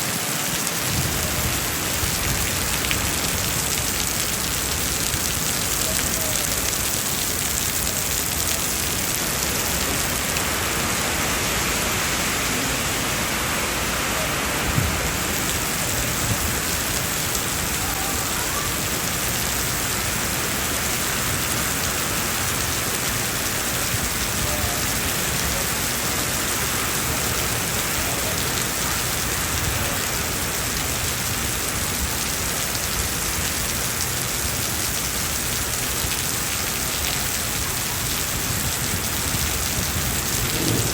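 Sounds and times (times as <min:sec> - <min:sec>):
heavy rain on pavement: 0:00.0 - 0:40.9.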